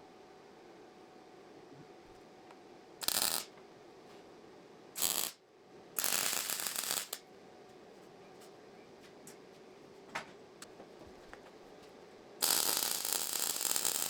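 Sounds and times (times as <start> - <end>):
welder crackling: 3.0 - 3.5, 5.0 - 5.4, 6.0 - 7.2, 12.4 - 14.0.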